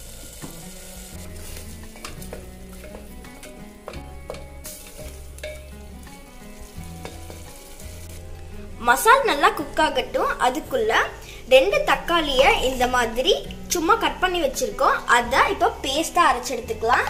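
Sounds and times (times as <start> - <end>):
paste sizzling in a pot: 0.0 - 9.6.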